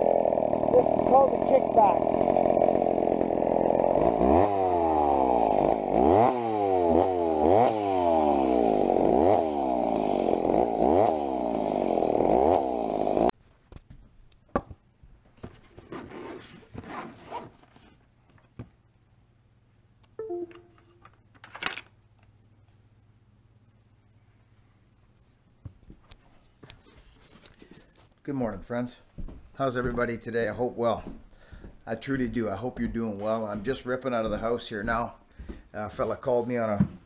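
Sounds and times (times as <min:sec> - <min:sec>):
chainsaw revving: 0:00.0 - 0:13.3.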